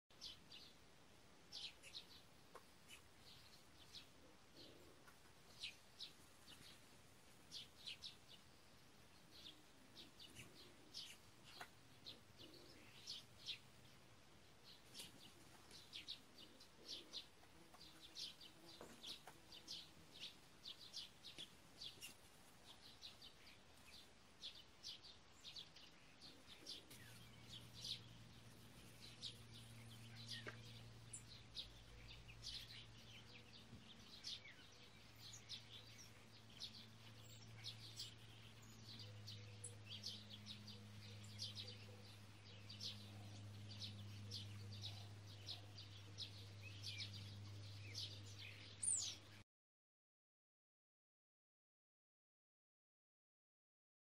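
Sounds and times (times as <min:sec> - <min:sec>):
faint birds chirping: 0:00.1 - 0:49.4
low steady hum: 0:00.1 - 0:49.4.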